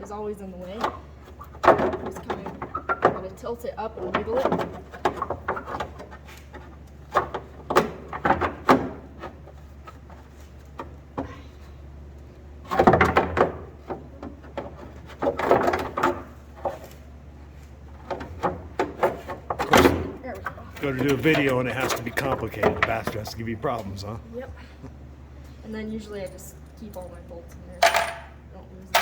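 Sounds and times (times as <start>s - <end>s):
clattering and scraping: 12.6s - 23.5s.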